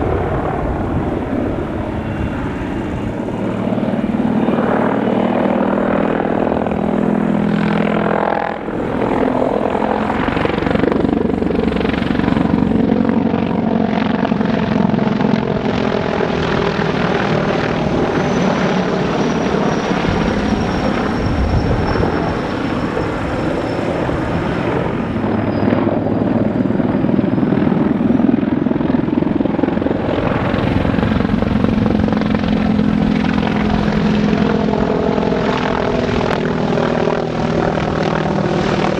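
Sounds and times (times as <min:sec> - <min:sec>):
helicopter rotor and turbine: 0:00.0 - 0:38.9.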